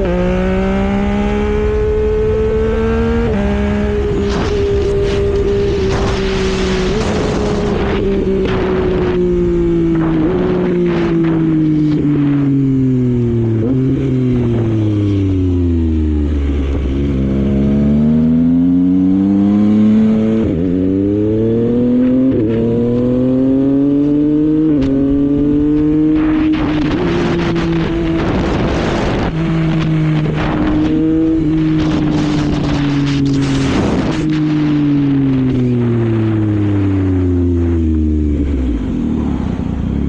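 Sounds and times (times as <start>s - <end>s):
motorcycle engine accelerating: 0.0s - 40.0s
wind noise: 0.0s - 40.0s.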